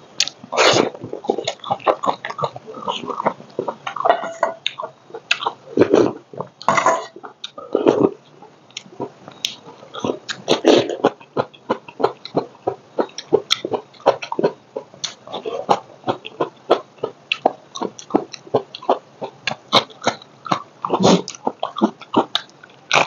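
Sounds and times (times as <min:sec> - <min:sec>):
low throat sounds: 0:05.4 - 0:08.2, 0:09.8 - 0:12.4, 0:19.8 - 0:23.0.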